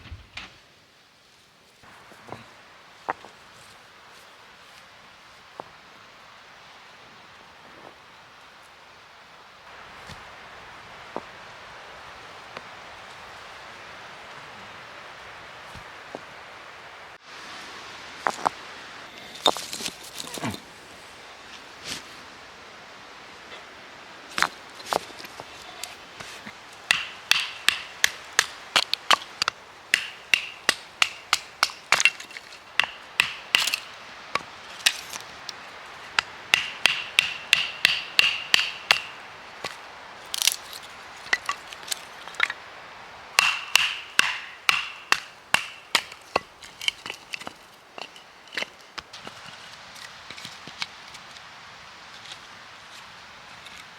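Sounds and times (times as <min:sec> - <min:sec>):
hard objects knocking and clacking: 0:26.9 - 0:42.6, 0:43.4 - 0:48.7.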